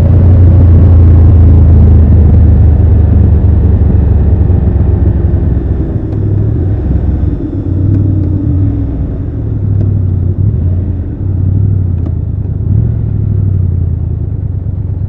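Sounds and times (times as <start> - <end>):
motorcycle engine and exhaust: 0.0 - 15.0.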